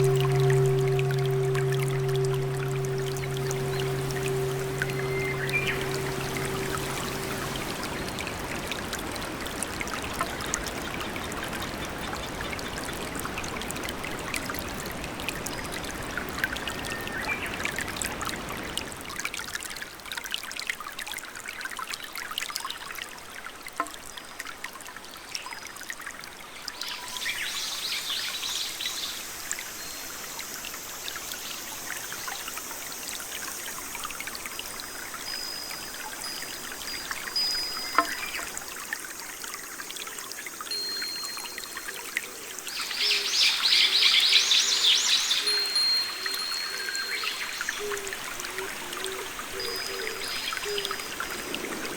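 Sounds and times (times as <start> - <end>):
water drips ticking: 0.0 - 16.6, 34.0 - 43.2
trickling and pouring water: 0.0 - 51.9.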